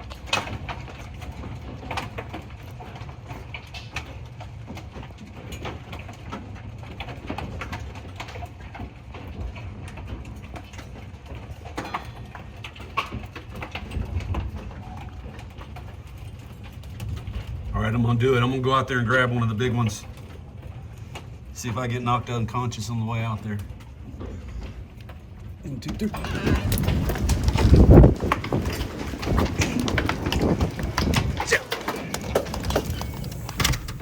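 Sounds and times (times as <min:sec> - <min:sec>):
hailstones striking hard surfaces: 0:00.0 - 0:34.0
steady low rumble: 0:17.1 - 0:31.5.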